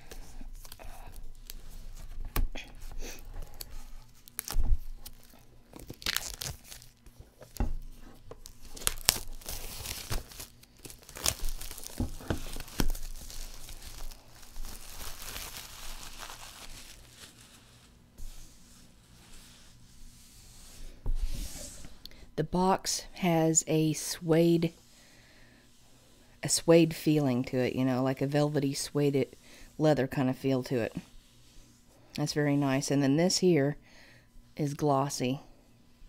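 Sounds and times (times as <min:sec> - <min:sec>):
plastic wrap crinkling: 0:03.2 - 0:18.0
sharp plastic rips: 0:03.4 - 0:07.1, 0:08.4 - 0:17.4.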